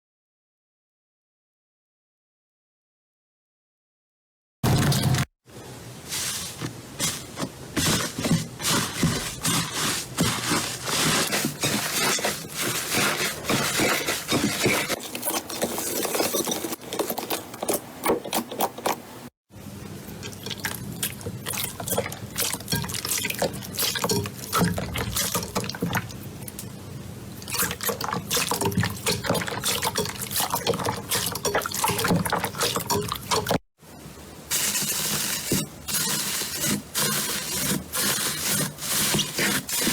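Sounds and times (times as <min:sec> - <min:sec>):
slime squelching by hand: 0:06.1 - 0:19.0.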